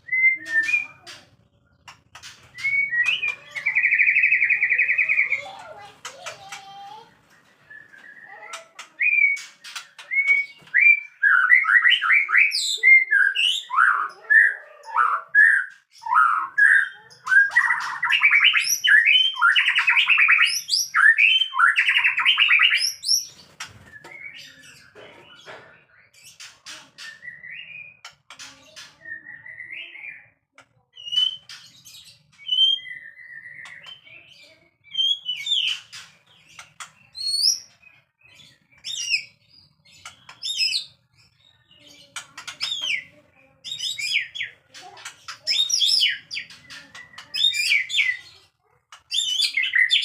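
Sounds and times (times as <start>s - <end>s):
shama singing whistled phrases: 0.0s - 1.0s, 2.6s - 5.1s
bird soft chirps and clicks: 30.5s - 34.6s, 35.2s - 43.2s.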